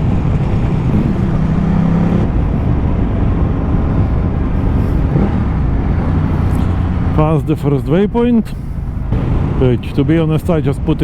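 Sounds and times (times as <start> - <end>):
wind rush on microphone: 0.0 - 7.2.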